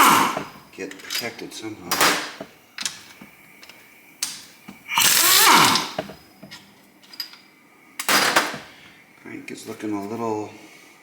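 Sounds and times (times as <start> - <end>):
power tool burst winding down: 4.9 - 5.9
metal clicks of tools: 6.5 - 7.5.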